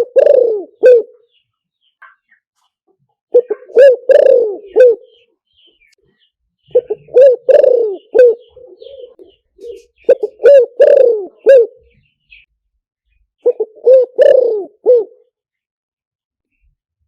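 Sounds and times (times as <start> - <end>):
dove cooing: 0.0 - 1.3, 3.3 - 5.3, 6.7 - 12.4, 13.4 - 15.3.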